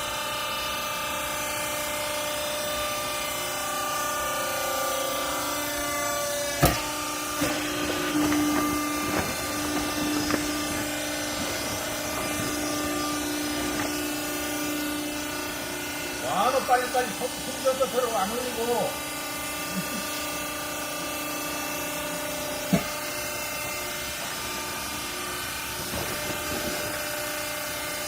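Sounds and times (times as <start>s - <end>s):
hydraulic baler humming: 0.0s - 28.0s
knocks and clanks: 6.6s - 14.1s, 22.6s - 23.0s.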